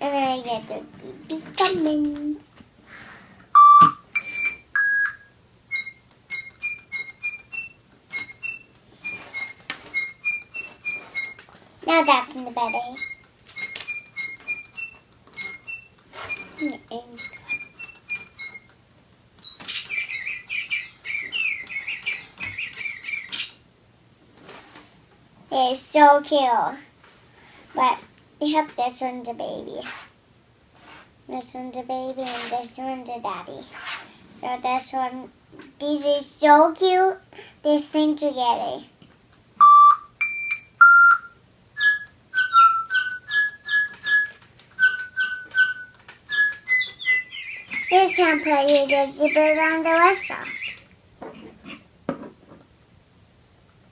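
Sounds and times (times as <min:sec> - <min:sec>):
electronic toy birds chirping: 0:03.6 - 0:18.8, 0:19.4 - 0:23.6, 0:39.6 - 0:50.9.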